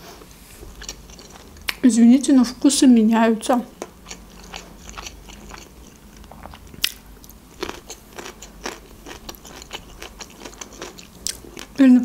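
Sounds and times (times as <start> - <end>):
crunchy chewing: 0.6 - 1.8, 3.8 - 11.8.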